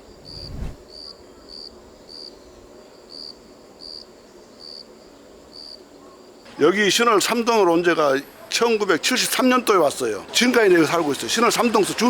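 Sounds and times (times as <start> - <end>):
cricket chirping: 0.0 - 6.6.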